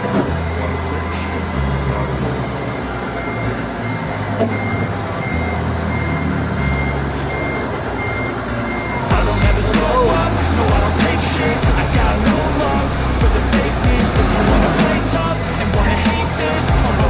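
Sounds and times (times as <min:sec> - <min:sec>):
forklift reversing alarm beeping: 0:00.0 - 0:17.0
music: 0:08.2 - 0:17.0.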